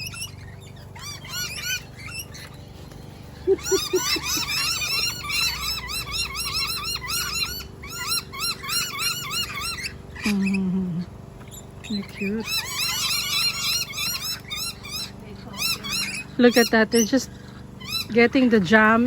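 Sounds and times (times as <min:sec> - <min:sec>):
lorikeets chattering: 0:00.0 - 0:19.0.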